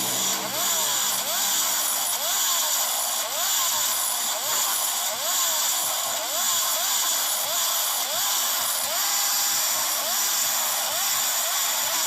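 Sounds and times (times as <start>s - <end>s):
two-stroke motorcycle engine revving: 0.0s - 2.8s.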